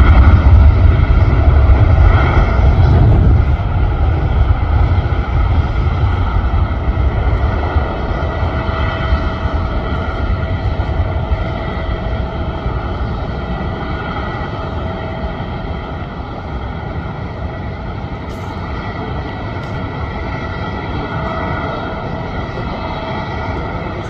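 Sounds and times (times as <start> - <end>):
jet engines running: 0.0 - 24.0.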